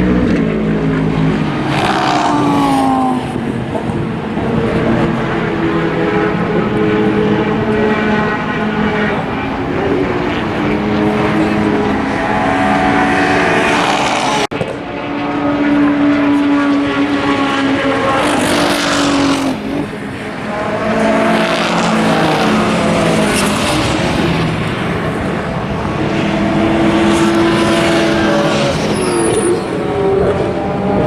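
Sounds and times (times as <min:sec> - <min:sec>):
race cars passing at speed: 0:00.0 - 0:31.0.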